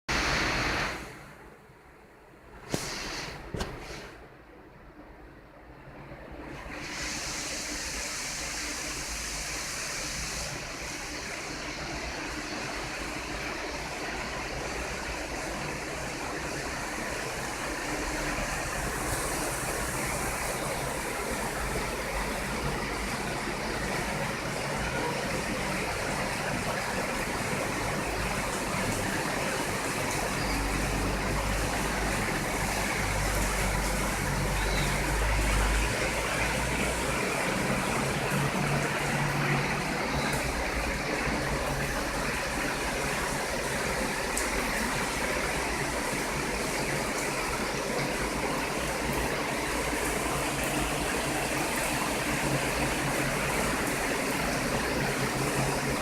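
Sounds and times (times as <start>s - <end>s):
heavy rain falling: 0.1s - 1.2s, 6.4s - 56.0s.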